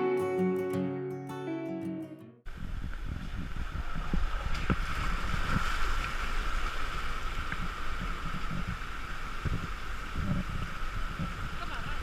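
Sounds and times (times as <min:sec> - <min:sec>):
high-pitched drone: 0:00.0 - 0:02.2
wind buffeting microphone: 0:02.5 - 0:12.0.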